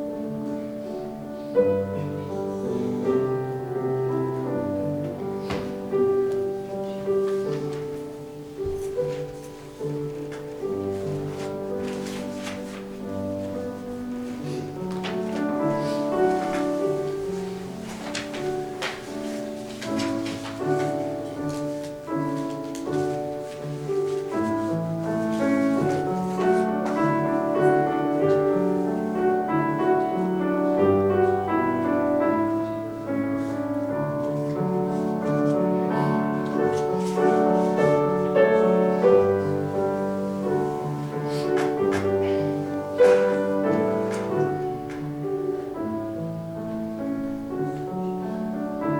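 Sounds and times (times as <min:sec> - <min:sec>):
slow piano music: 0:00.0 - 0:48.9.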